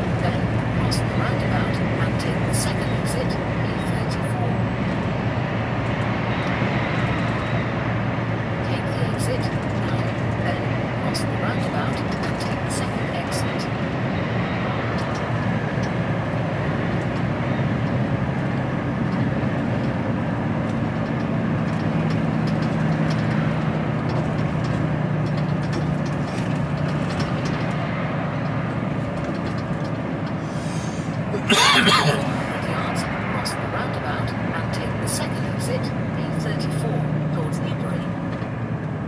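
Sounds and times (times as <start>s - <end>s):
lorry diesel engine hum: 0.0s - 39.0s
road noise inside cab: 0.0s - 39.0s.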